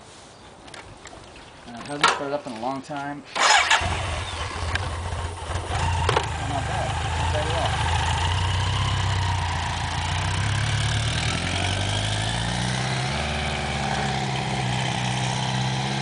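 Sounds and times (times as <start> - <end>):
motorcycle engine idling: 3.5 - 11.3.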